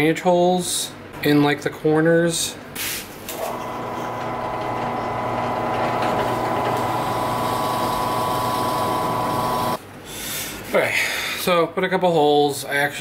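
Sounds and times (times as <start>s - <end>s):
electric drill boring wood: 3.4s - 9.8s.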